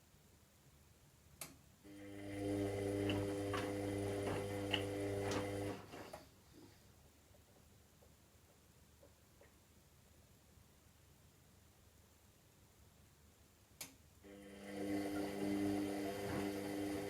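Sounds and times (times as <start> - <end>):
washing machine motor humming: 1.9 - 6.2, 14.2 - 17.0
washing machine clicks: 2.8 - 5.9.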